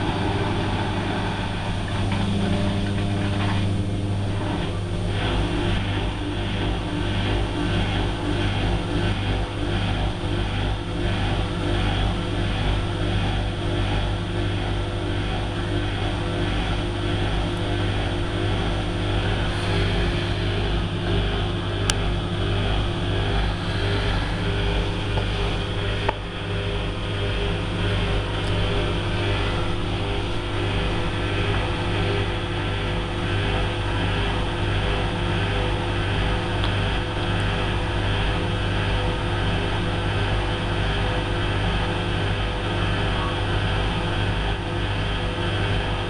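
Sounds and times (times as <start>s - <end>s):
washing machine running: 0.0s - 46.0s.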